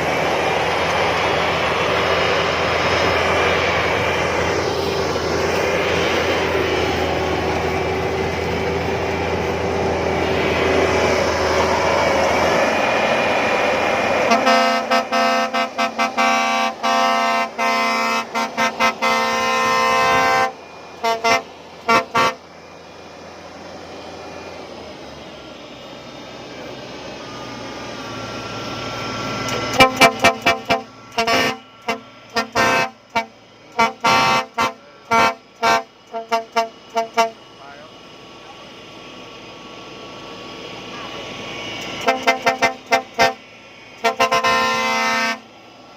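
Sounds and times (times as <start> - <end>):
harvester engine running: 0.0 - 45.9
air horn short blasts: 14.2 - 22.4, 29.7 - 37.4, 42.0 - 43.4, 44.0 - 45.4.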